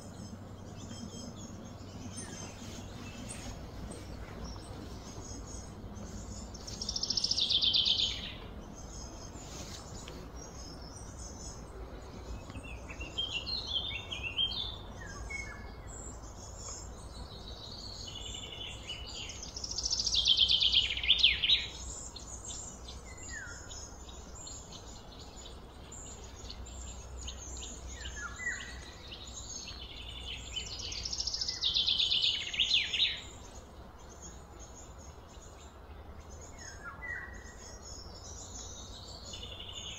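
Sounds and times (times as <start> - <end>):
low background hum: 0.0 - 39.9
songbird singing: 0.0 - 39.9.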